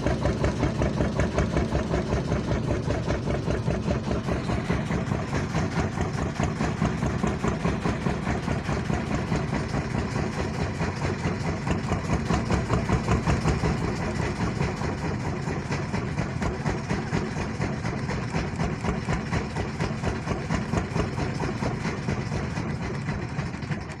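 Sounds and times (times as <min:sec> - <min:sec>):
propeller aircraft engine throbbing: 0:00.0 - 0:24.0.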